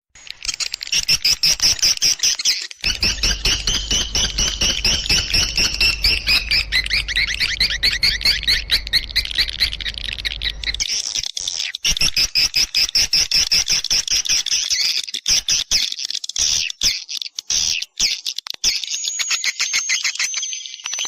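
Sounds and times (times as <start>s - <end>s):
low rumble: 2.8s - 10.9s
swiftlets twittering: 2.8s - 10.9s.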